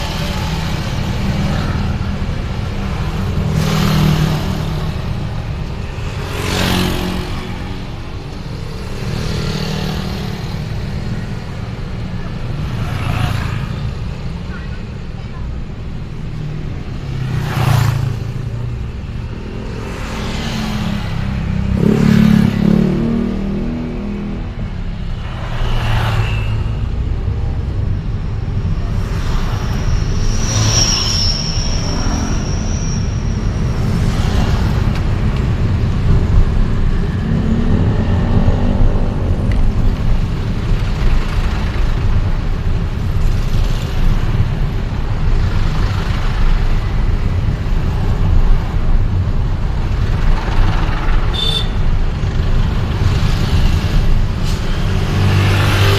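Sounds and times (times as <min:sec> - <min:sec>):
vehicles whooshing past: 0:00.0 - 0:14.4, 0:16.4 - 0:55.9
engine and road rumble: 0:00.0 - 0:55.9
high-pitched whine: 0:28.3 - 0:35.2.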